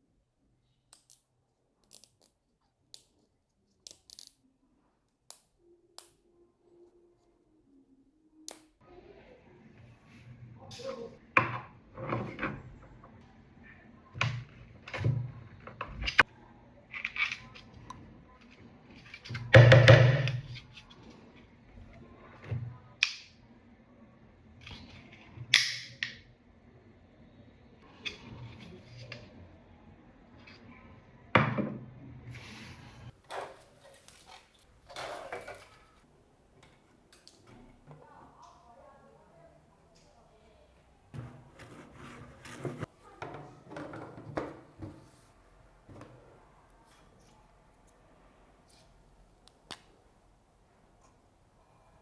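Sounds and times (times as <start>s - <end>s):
rough scrape of hard objects: 41.2s - 42.9s.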